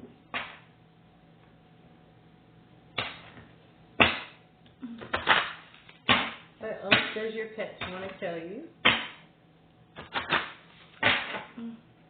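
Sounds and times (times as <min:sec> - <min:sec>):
cards slapping and swishing: 0:10.0 - 0:11.5.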